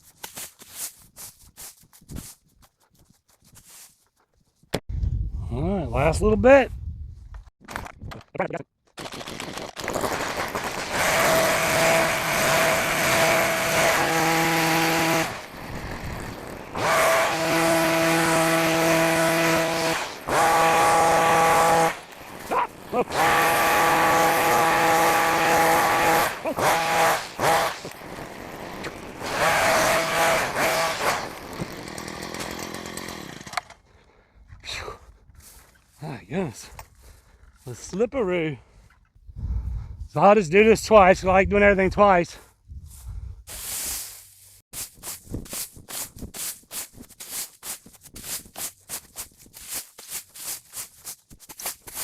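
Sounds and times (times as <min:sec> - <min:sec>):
grass trimmer engine revving: 0:10.1 - 0:33.7.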